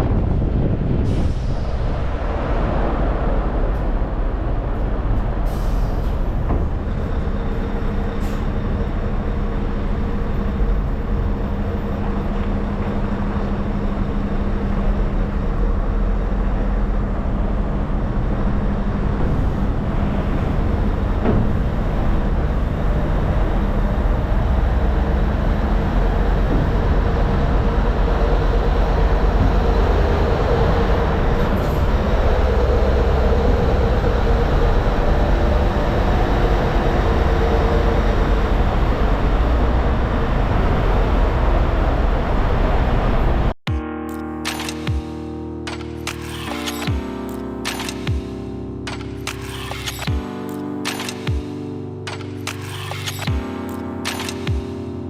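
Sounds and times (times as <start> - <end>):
truck diesel engine rumbling: 0.0 - 43.6
road and tyre noise: 0.0 - 55.0.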